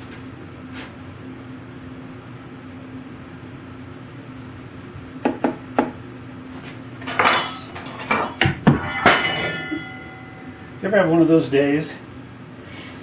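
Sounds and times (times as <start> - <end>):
small metal parts clattering: 7.0 - 10.4.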